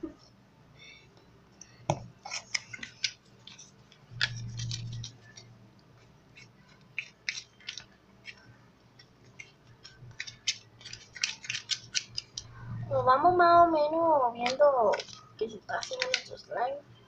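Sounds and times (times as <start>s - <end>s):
low hum: 12.4s - 13.7s.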